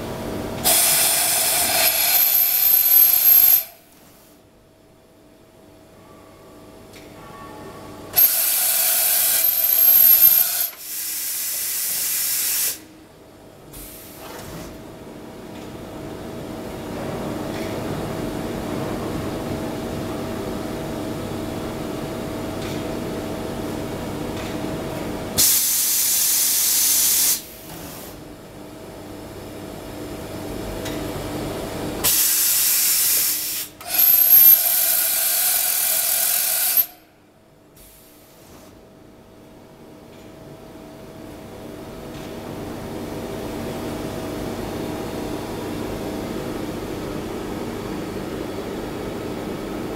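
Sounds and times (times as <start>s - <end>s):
compressed air hissing: 0.6s - 2.1s, 10.4s - 12.9s.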